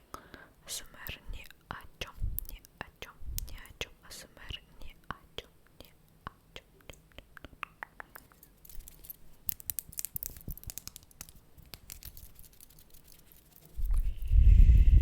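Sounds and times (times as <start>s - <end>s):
crisp clicks: 6.8s - 14.1s
scratching: 8.2s - 14.4s.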